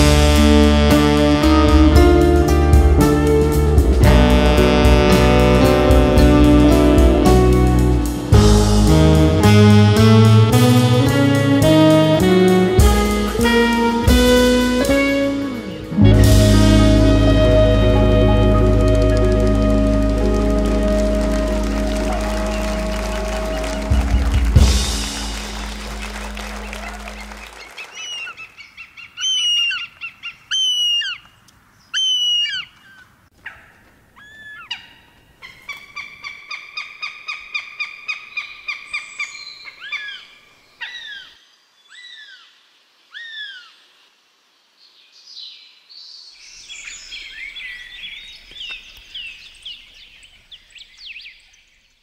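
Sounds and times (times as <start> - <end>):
birds chirping: 12.8 - 44.0, 45.2 - 52.0
bird hooked calls: 26.4 - 40.2.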